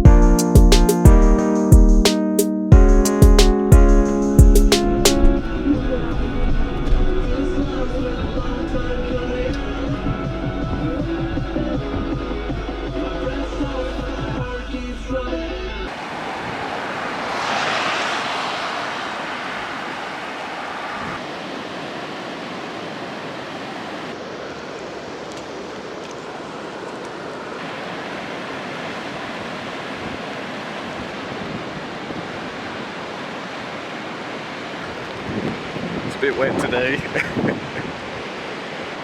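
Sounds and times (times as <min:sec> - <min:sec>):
steady outdoor rushing noise: 0:15.9 - 0:25.0.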